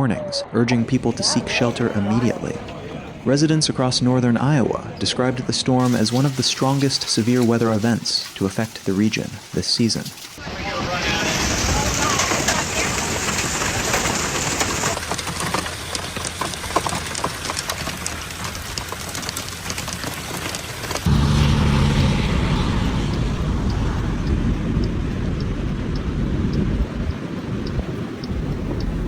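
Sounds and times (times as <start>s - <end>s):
hailstones striking: 0.8s - 10.4s, 11.0s - 25.9s
heavy rain: 0.8s - 29.0s
steady low hum: 21.1s - 27.1s.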